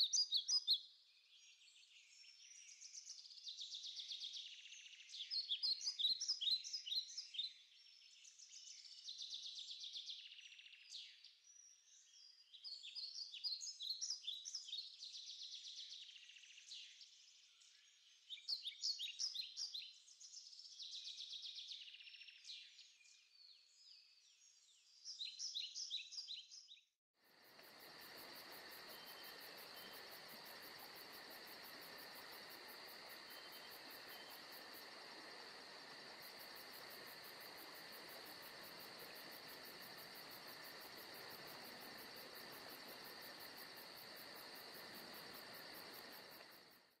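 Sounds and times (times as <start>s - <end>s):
insect chorus buzzing: 27.2s - 47.0s
soft hiss: 27.4s - 46.8s.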